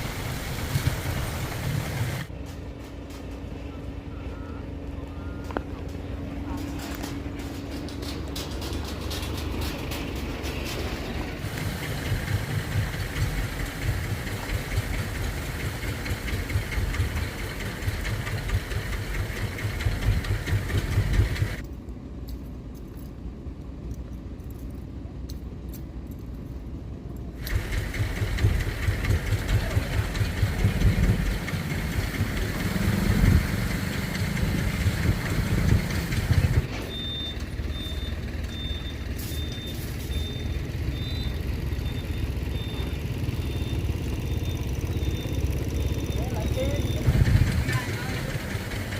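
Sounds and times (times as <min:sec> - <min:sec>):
vehicle engine rumbling: 0:00.0 - 0:48.9
faint steady high tone: 0:03.6 - 0:05.9.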